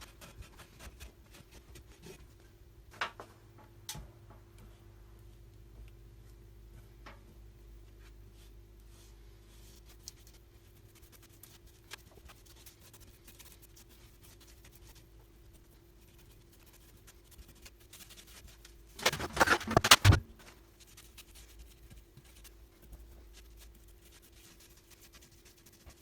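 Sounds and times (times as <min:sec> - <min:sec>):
faint steady hum: 0:00.0 - 0:26.0
light scratching: 0:09.6 - 0:26.0.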